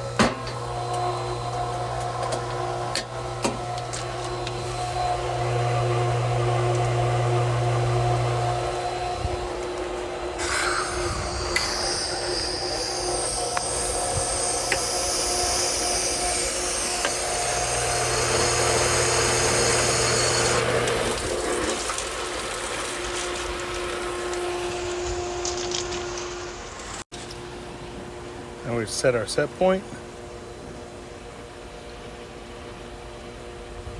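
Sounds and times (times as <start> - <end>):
heat pump humming: 0.0 - 33.9.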